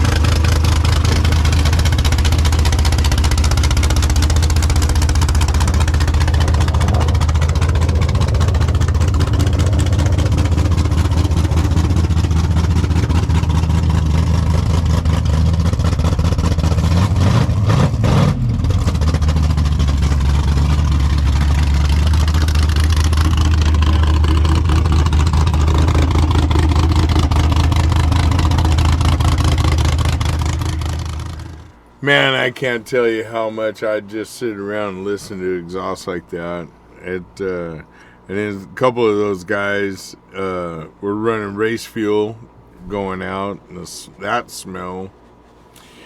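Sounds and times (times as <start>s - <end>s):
engine rev: 0.0s - 31.9s
car engine idling: 0.0s - 33.7s.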